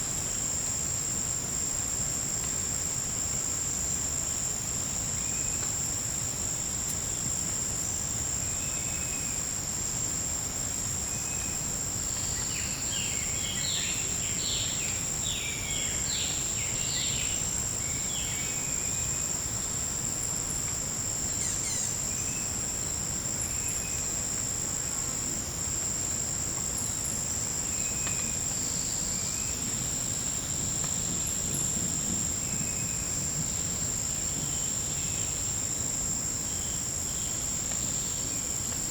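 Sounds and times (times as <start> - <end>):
insect chorus drone: 0.0 - 38.9.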